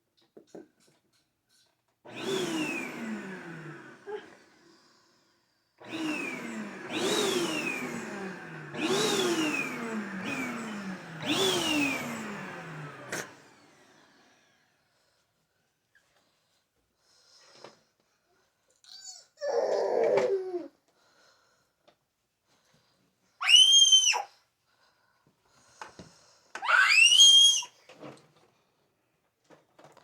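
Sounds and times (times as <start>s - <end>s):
vacuum cleaner motor: 2.1s - 14.9s, 26.6s - 27.7s.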